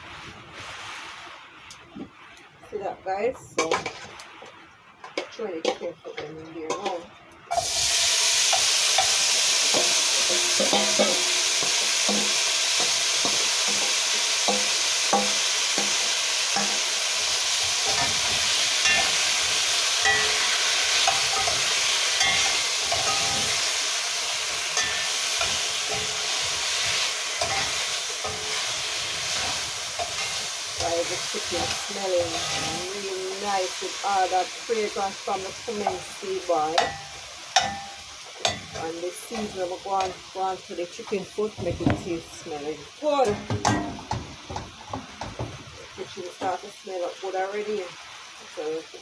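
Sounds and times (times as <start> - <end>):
food sizzling in hot oil: 0.0 - 49.0
stirring knocks against pot: 9.8 - 12.3.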